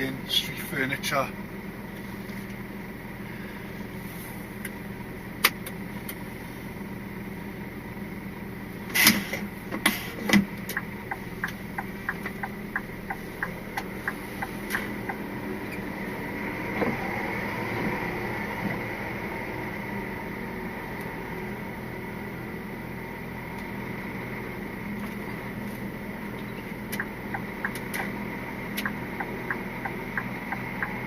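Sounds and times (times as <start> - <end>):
lorry diesel engine running: 0.0 - 31.0
quick evenly spaced ticks: 10.7 - 15.2, 28.8 - 31.0.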